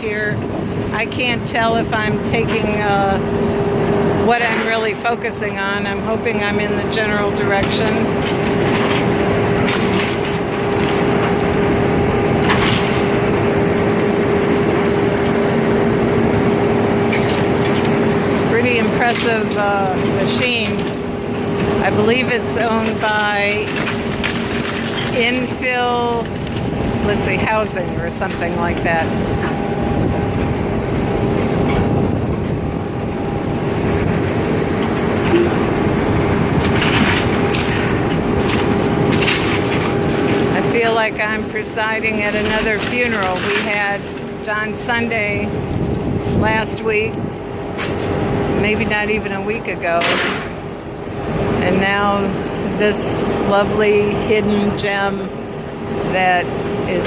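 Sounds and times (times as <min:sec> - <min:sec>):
excavator engine humming: 0:00.0 - 0:57.0
wood crunching: 0:33.4 - 0:44.4.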